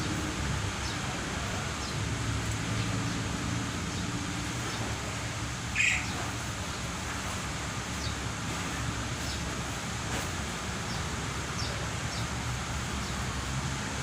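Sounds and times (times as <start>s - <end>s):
songbird sharp call: 5.7s - 6.2s
faint bird chirps: 5.8s - 6.2s.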